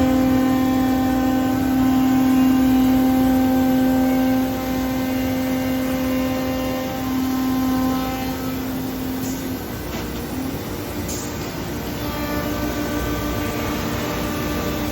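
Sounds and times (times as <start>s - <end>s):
router spindle whine: 0.0s - 10.9s.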